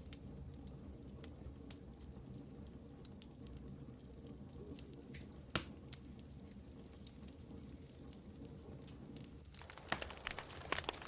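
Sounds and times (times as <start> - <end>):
wood fire crackling: 0.0 - 11.0
fire pop: 9.4 - 11.0.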